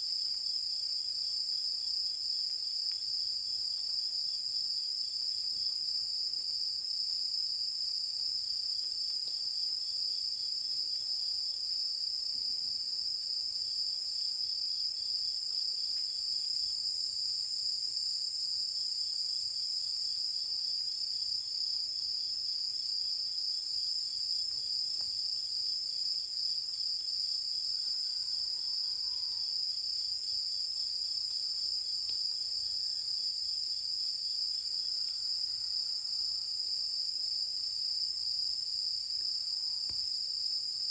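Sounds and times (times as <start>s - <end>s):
insects trilling: 27.4s - 33.9s.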